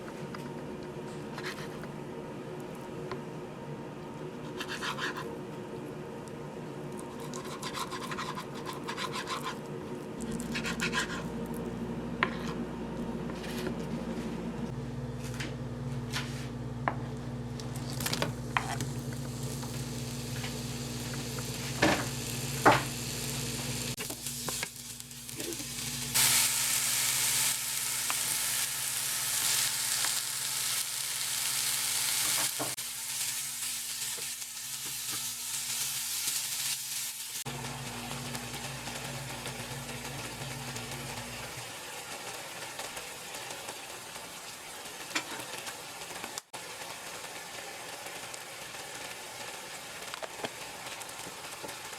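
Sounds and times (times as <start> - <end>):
food sizzling in hot oil: 18.6 - 51.9.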